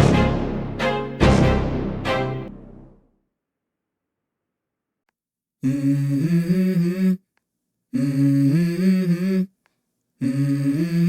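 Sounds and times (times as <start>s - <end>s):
hummed vocal melody: 5.6s - 7.2s, 7.9s - 9.5s, 10.2s - 11.0s.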